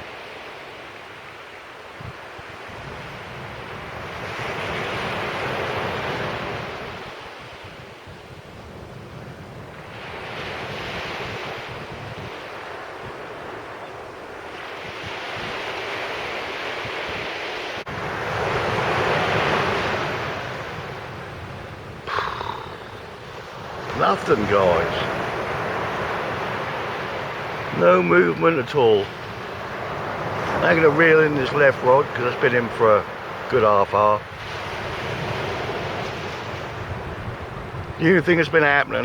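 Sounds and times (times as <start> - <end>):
sea waves breaking on beach: 0.0 - 39.0
wind buffeting microphone: 2.0 - 13.6, 34.2 - 38.0.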